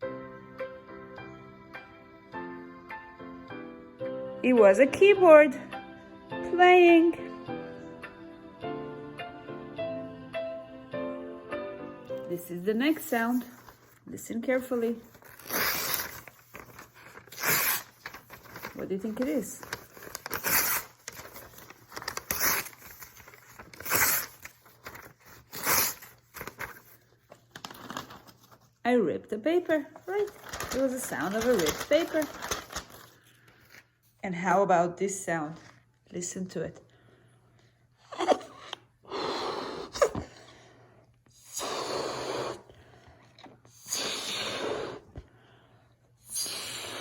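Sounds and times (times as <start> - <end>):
paper tearing: 14.7 - 28.6, 30.1 - 33.2
breath puffs into balloon: 15.3 - 16.3, 16.9 - 18.0, 20.3 - 21.0, 23.8 - 24.4, 39.0 - 40.7, 41.3 - 45.4, 46.2 - 47.0.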